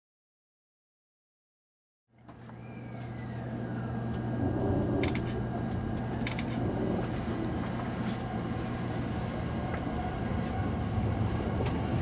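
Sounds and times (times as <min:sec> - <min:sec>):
low electrical hum: 0:02.1 - 0:12.0
train cabin rumble: 0:02.3 - 0:12.0
sharp clicks: 0:05.0 - 0:06.6.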